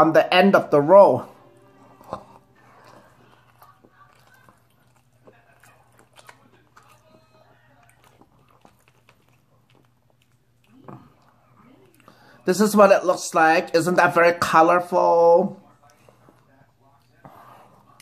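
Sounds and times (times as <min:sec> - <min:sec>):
chewing crunches: 0:02.0 - 0:12.4.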